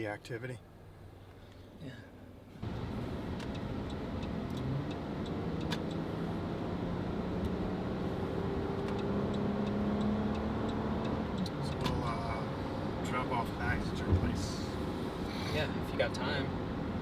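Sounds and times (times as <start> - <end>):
car engine and road noise: 0.6 - 17.0
light ticks: 3.3 - 6.1, 8.8 - 12.0.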